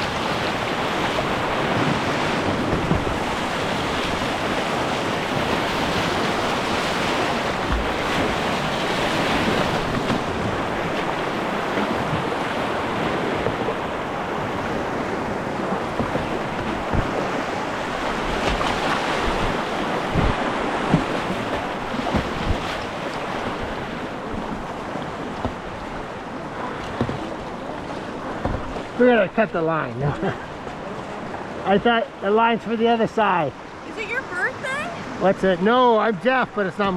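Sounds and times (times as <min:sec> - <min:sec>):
rushing river water: 0:00.0 - 0:36.9
short low thumps: 0:18.0 - 0:21.2.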